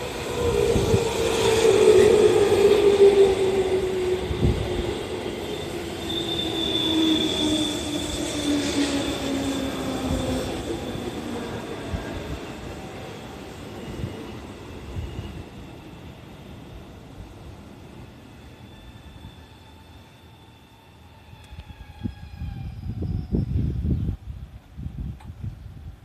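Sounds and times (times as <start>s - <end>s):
train brake squeal: 4.2s - 16.8s, 17.7s - 24.3s
train motor whine: 18.5s - 24.0s.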